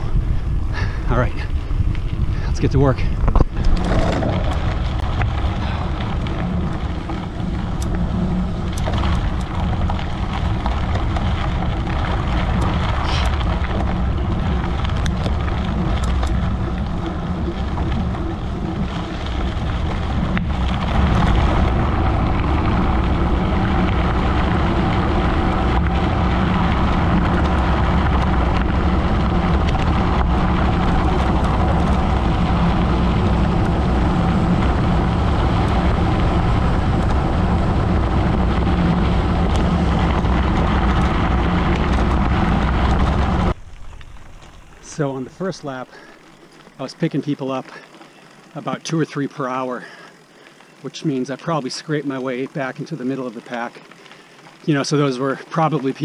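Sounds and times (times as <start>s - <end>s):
wind on microphone: 0.0s - 45.5s
tyres rumbling over gravel: 0.0s - 56.0s
small clicks and rattles: 3.2s - 33.8s.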